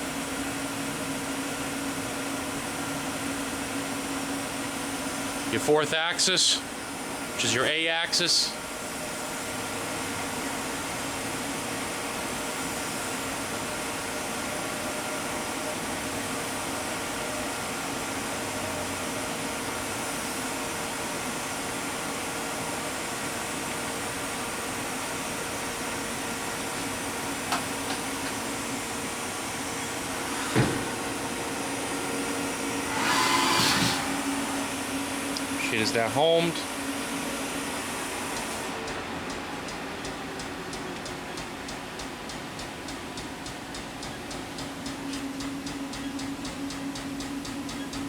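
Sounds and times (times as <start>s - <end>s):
machine hum: 0.0s - 48.0s
machine whine: 0.0s - 48.0s
sharp machine clunk: 32.9s - 34.6s.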